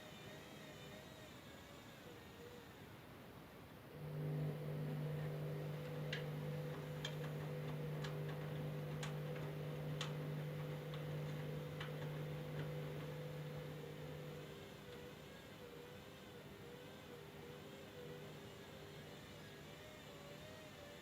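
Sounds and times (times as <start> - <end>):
washing machine humming: 3.9 - 20.6.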